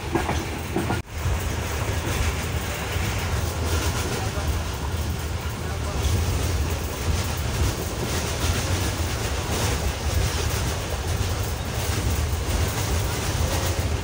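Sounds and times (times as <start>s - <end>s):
rushing noise of running train: 0.0s - 14.0s
train wheels rumbling on track: 0.0s - 14.0s.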